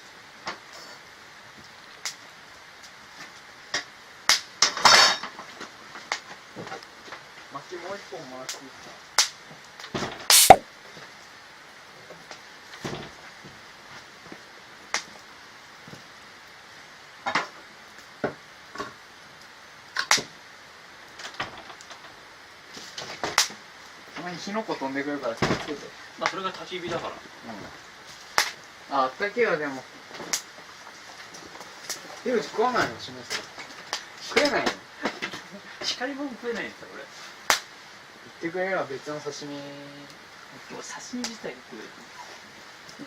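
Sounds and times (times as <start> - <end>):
low steady hiss: 0.0 - 43.0
wood fire crackling: 0.1 - 43.0
burning wood popping: 10.3 - 10.6, 22.7 - 23.9, 28.1 - 28.7, 30.2 - 32.3.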